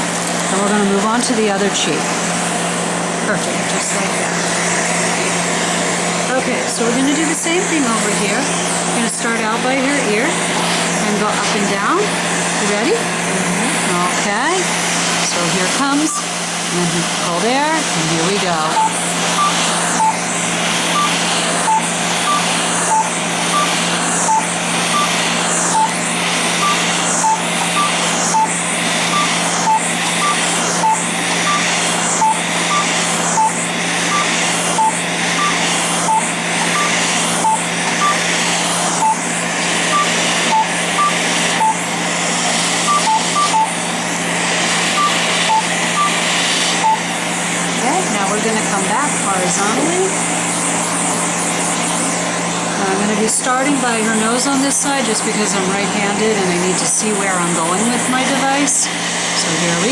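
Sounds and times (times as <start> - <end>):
cold air hose blowing: 6.9 - 52.7
laser handpiece beeping: 15.3 - 16.5, 17.2 - 42.0, 42.7 - 43.9, 44.8 - 47.2.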